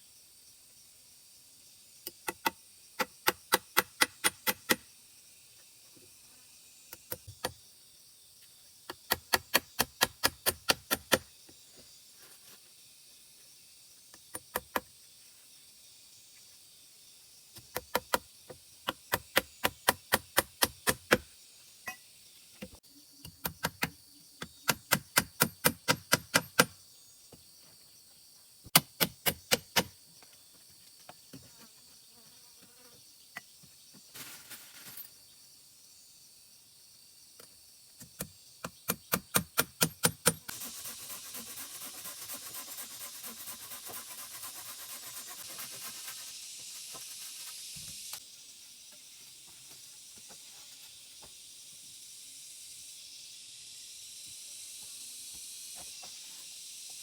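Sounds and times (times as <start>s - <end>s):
hiss with dense rattle: 40.2s - 57.0s.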